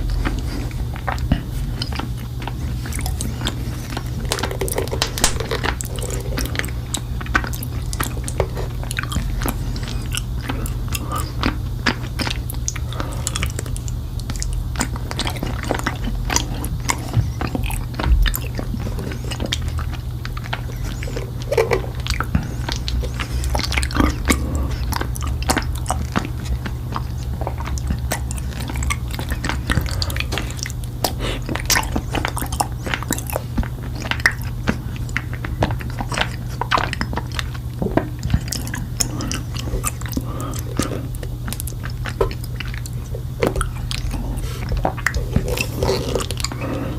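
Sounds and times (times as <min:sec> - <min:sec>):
honeycomb being chewed: 0:00.0 - 0:46.9.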